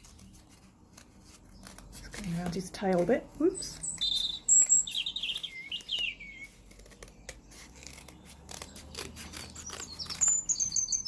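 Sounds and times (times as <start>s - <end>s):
scissors snipping card: 0.0s - 10.5s
recorded songbirds chirping: 3.5s - 11.0s.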